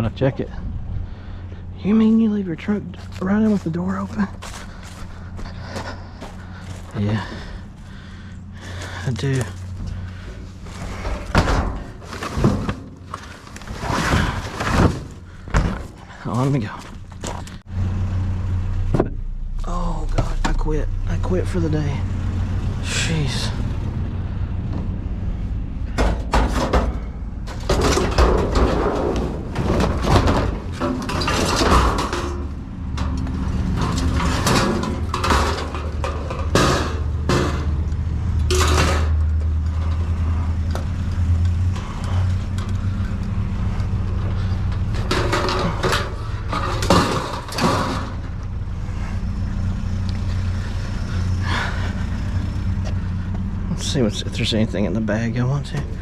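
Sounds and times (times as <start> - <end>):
low engine hum: 0.0 - 56.0
trash knocks and scrapes: 2.9 - 17.6, 25.9 - 53.1.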